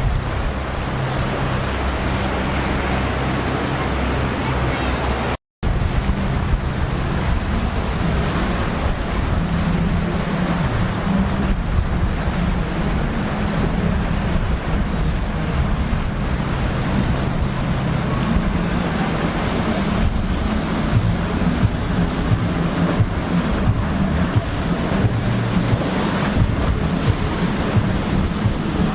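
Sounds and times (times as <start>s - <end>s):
boat engines droning: 0.0s - 28.9s
waves breaking: 0.0s - 28.9s
wind rushing: 0.0s - 28.9s.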